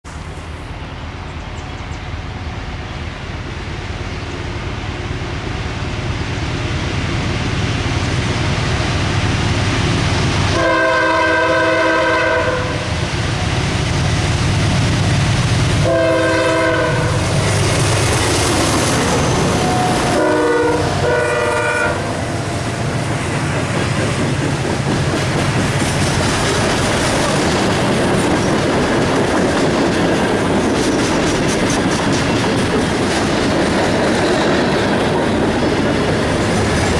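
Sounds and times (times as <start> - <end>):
locomotive rumble: 0.1 - 36.9
train chord horn: 10.5 - 12.9, 15.8 - 17.3, 19.5 - 22.4
wheels clattering over rails: 22.6 - 36.9.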